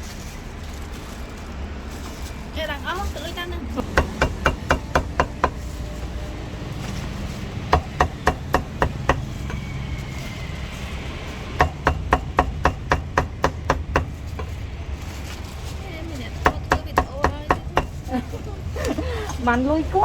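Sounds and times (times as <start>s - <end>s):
cleaver chopping meat: 3.8s - 5.9s, 6.8s - 10.3s, 11.3s - 14.6s, 16.4s - 18.1s.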